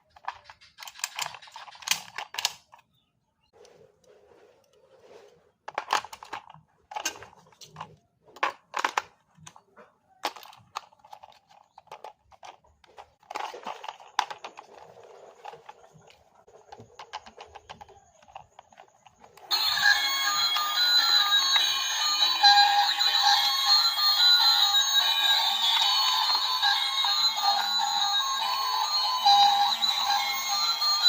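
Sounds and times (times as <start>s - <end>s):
music: 19.5s - 31.0s.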